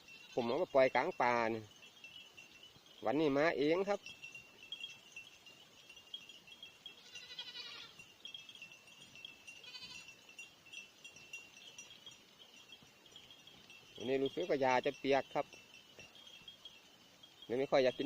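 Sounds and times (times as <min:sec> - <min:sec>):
distant goat bleating: 0:07.0 - 0:08.0, 0:09.6 - 0:10.2.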